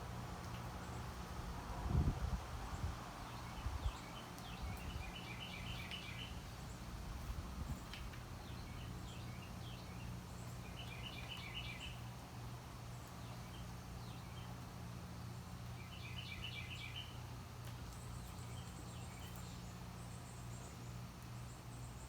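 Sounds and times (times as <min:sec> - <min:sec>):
bird chirping: 0:08.4 - 0:12.0, 0:15.8 - 0:17.2.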